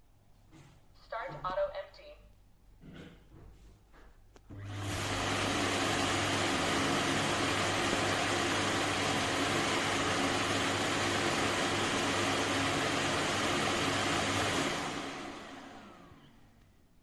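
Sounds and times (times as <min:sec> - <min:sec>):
vacuum dock suction motor: 0:04.5 - 0:16.4.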